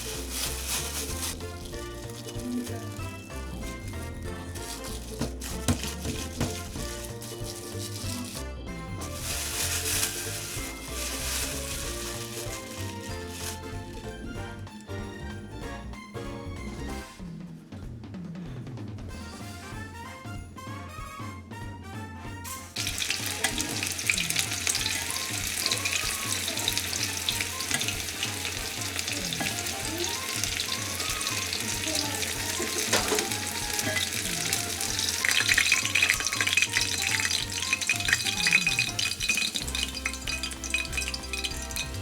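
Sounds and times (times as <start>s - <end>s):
food sizzling in hot oil: 0.0s - 8.4s, 9.0s - 13.7s, 22.5s - 42.0s
background music: 0.0s - 18.1s, 19.1s - 42.0s.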